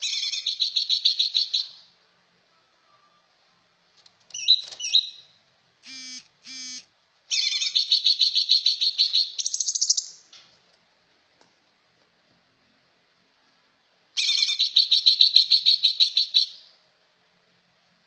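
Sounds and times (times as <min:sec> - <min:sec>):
songbird singing with rattling trill: 0:00.0 - 0:01.9, 0:04.3 - 0:10.4, 0:14.2 - 0:16.7.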